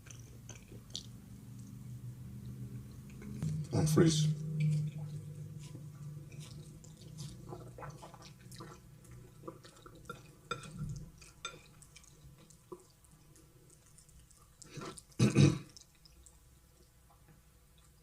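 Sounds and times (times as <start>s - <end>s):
wet chewing sounds: 0.0s - 18.0s.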